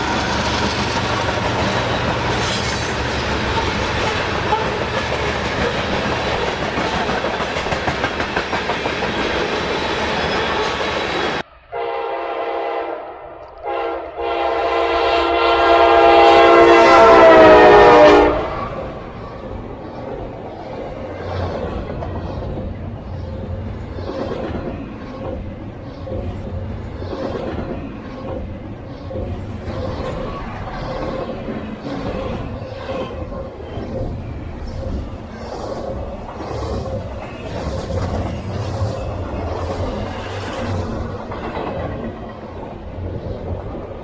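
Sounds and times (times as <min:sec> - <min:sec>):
train wheel clatter: 0:00.0 - 0:11.4, 0:16.9 - 0:44.0
freight train rolling by: 0:00.0 - 0:44.0
locomotive air horn: 0:11.7 - 0:18.8.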